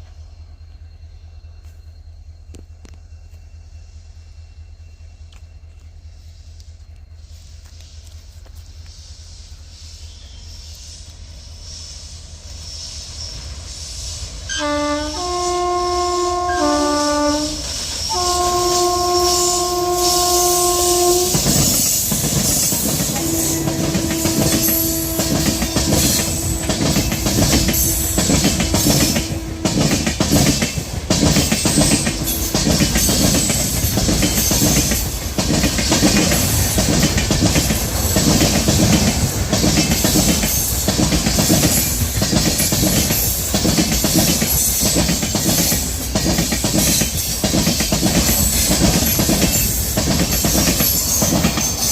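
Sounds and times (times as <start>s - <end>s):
locomotive horn: 14.5s - 21.9s, 23.0s - 30.5s
train wheels clattering over joints: 17.1s - 51.9s.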